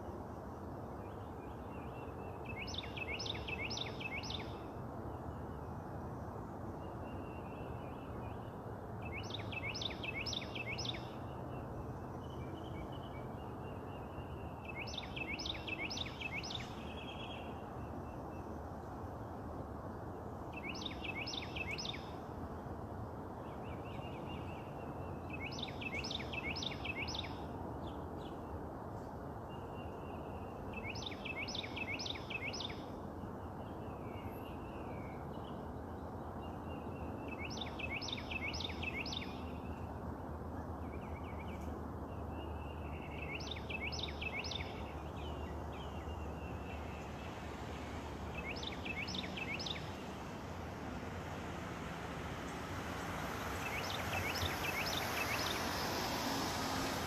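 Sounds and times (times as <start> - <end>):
soft bird trill: 52.2 - 57.0.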